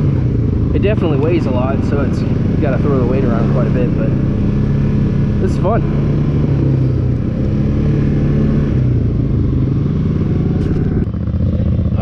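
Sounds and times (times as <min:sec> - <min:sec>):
different engine sound: 0:00.0 - 0:12.0
dirt bike engine running: 0:00.0 - 0:12.0.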